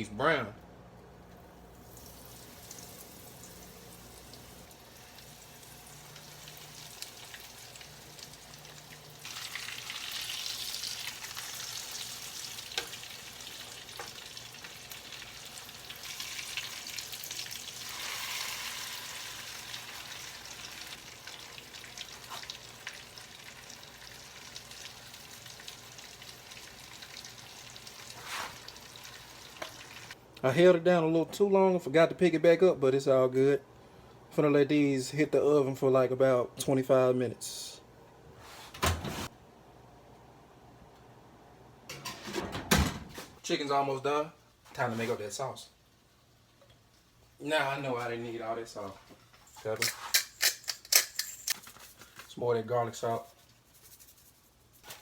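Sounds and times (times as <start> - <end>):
food sizzling in hot oil: 1.7 - 30.2.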